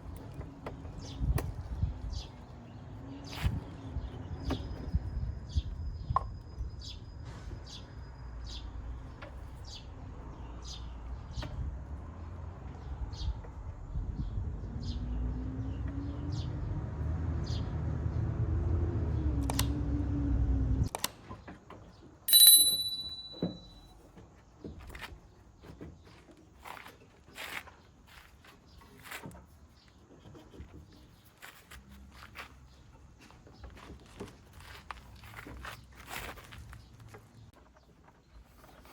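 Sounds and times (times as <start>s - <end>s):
short high chirps: 22.3s - 23.8s.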